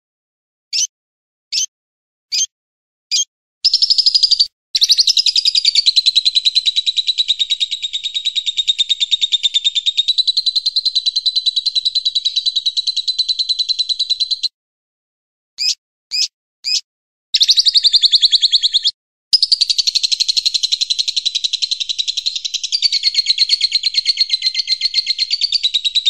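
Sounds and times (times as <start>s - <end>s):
fast high bird trill: 0.7s - 0.9s, 3.1s - 14.5s, 17.4s - 26.0s
songbird chirps: 0.7s - 0.9s, 1.5s - 1.7s, 2.3s - 2.5s, 3.1s - 14.5s, 15.6s - 16.8s, 17.4s - 26.0s.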